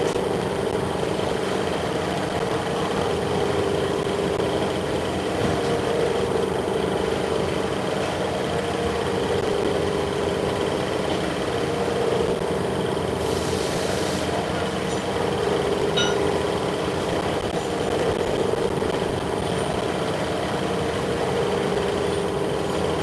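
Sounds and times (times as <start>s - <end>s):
workshop machinery humming: 0.0s - 23.0s
brief hiss: 13.2s - 14.4s.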